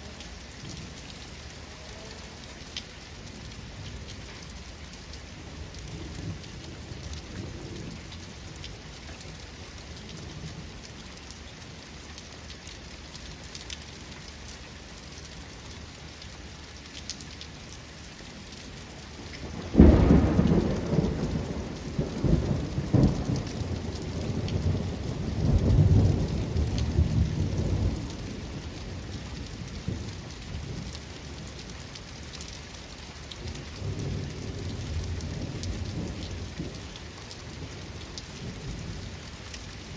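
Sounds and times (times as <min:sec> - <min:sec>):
steady rain: 0:00.0 - 0:39.9
thunder crack and rumble: 0:19.4 - 0:28.8.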